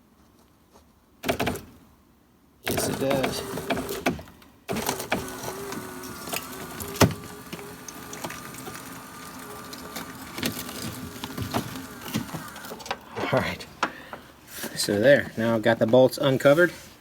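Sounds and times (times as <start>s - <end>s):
electric seat motor whining: 2.7s - 13.1s.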